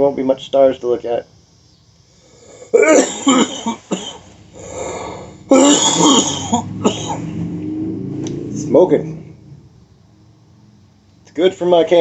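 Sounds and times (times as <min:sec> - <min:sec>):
soft breath: 0:02.0 - 0:02.8, 0:04.5 - 0:05.5
man coughing hard: 0:02.7 - 0:07.3.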